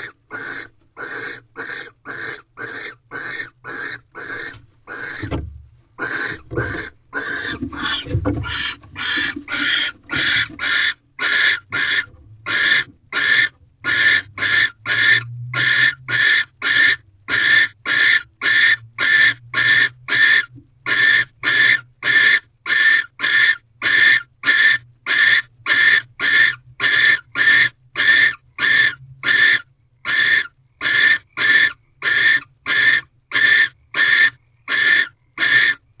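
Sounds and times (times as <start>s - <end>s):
owl rasping hisses: 0.3s - 5.3s.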